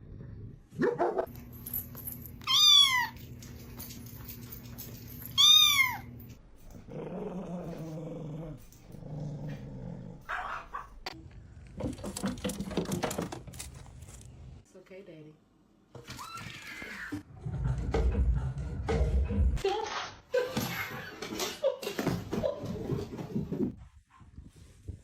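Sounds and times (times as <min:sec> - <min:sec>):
cat meowing: 0:02.4 - 0:03.2, 0:05.4 - 0:06.1.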